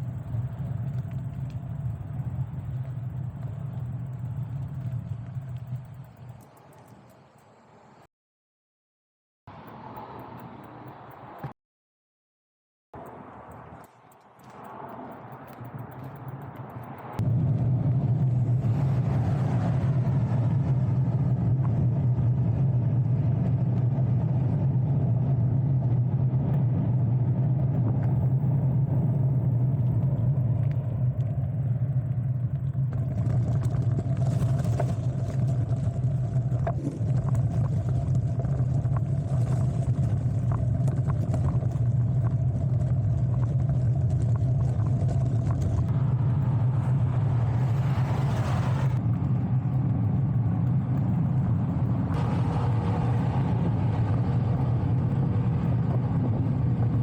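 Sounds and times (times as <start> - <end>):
bicycle riding rumble: 0.0 - 8.0, 13.0 - 57.0
faint clicks: 0.0 - 8.1, 9.6 - 11.6, 13.0 - 17.3.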